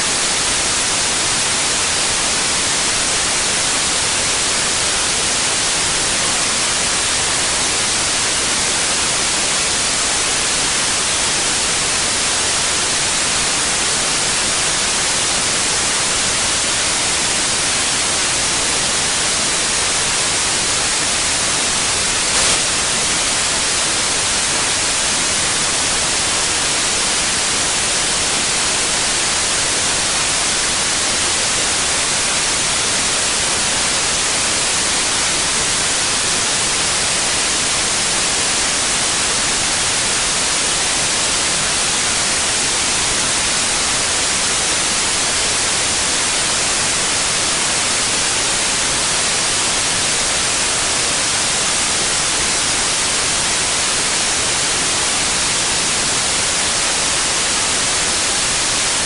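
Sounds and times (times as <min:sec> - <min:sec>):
steady white noise hiss: 0:00.0 - 0:59.0.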